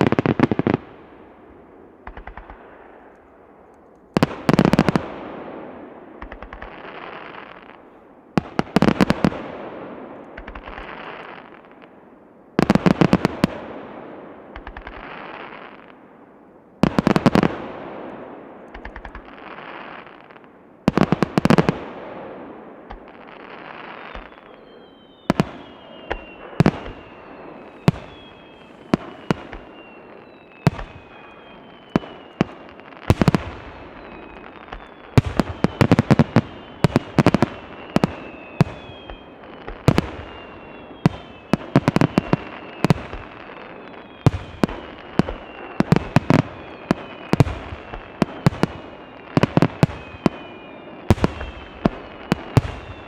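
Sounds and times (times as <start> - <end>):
fireworks whistles falling in pitch: 22.9 - 53.0.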